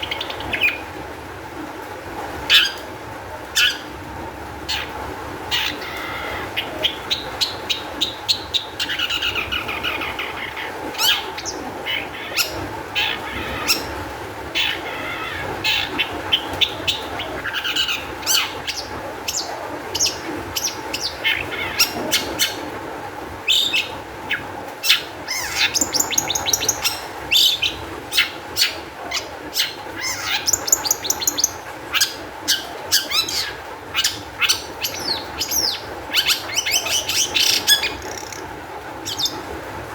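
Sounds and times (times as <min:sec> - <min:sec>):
bird singing with chips and trills: 0:05.5 - 0:14.0, 0:14.6 - 0:22.7, 0:24.9 - 0:39.4.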